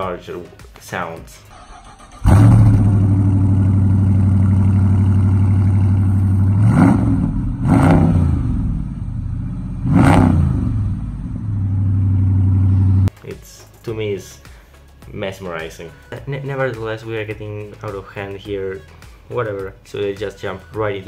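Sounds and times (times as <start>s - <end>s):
car engine idling and revving: 1.6s - 13.1s.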